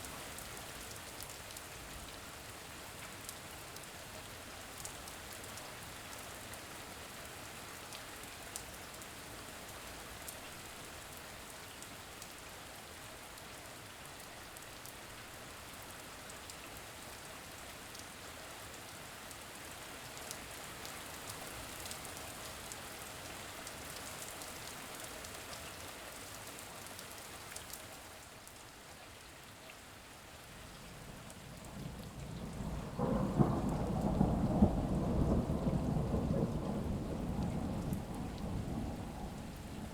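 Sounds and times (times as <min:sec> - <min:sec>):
steady rain falling: 0:00.0 - 0:39.9
thunder rumbling: 0:31.6 - 0:39.9.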